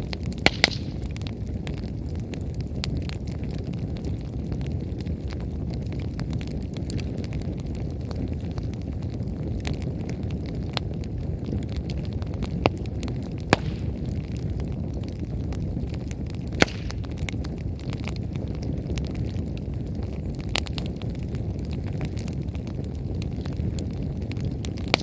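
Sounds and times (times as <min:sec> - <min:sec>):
bonfire low rumble: 0:00.0 - 0:25.0
firewood crackling and popping: 0:00.0 - 0:25.0.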